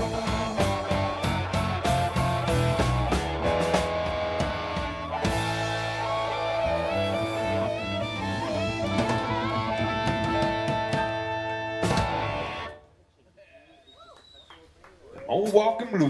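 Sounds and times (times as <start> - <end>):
bass guitar: 0.0 - 12.8
electric guitar lead: 0.0 - 12.8
drums: 0.0 - 15.8.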